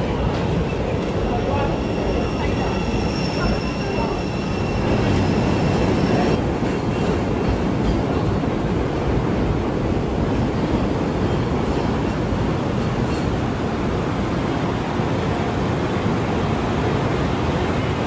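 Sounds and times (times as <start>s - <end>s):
train wheels rumbling on rail: 0.0s - 18.0s
thin high whine: 1.4s - 6.4s.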